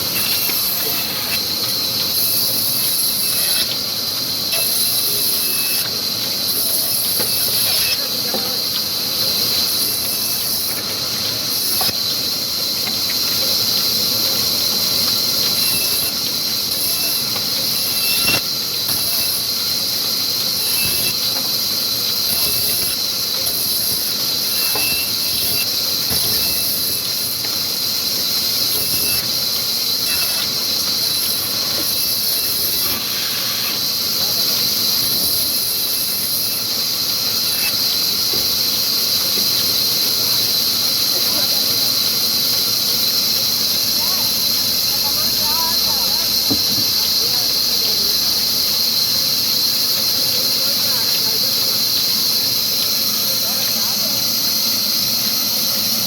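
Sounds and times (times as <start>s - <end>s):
diesel engine driving saw: 0.0s - 56.0s
short squeals: 30.0s - 30.5s.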